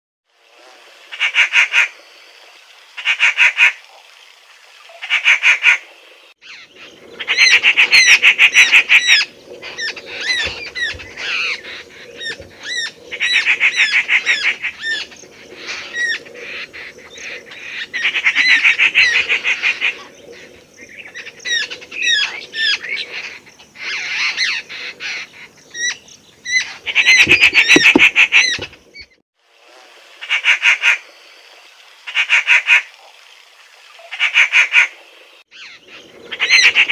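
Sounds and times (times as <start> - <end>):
bird stuttering trills: 6.4 - 29.1.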